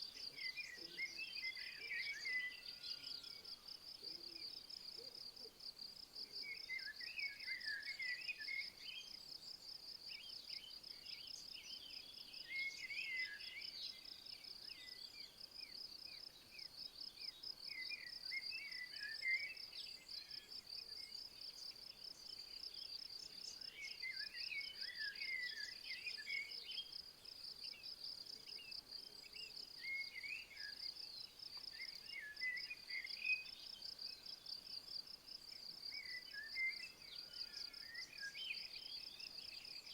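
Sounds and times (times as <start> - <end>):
insect chirping: 12.2 - 39.9.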